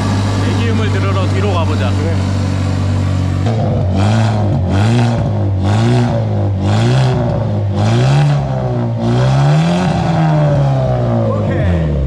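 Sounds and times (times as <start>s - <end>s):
car engine revving in blips: 0.0s - 12.0s.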